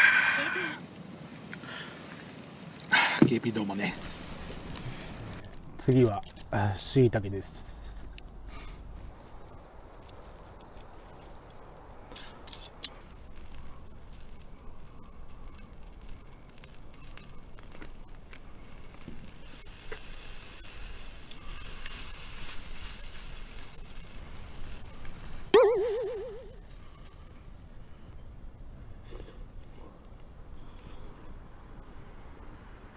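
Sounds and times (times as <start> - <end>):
mushrooms sizzling on a grill: 0.1 - 32.9
short wavering pitched cry: 25.5 - 26.6.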